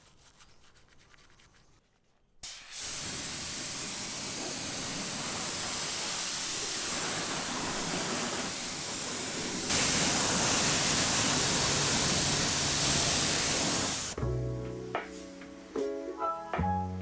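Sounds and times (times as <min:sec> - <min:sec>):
high-pressure water spray hissing: 0:02.4 - 0:14.2
music: 0:14.2 - 0:17.0.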